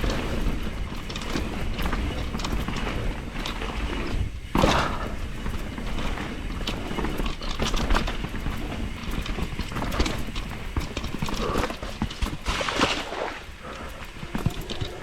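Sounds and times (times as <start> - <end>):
bike chain and frame rattling: 0.0 - 15.0
wind and rolling rumble: 0.0 - 15.0.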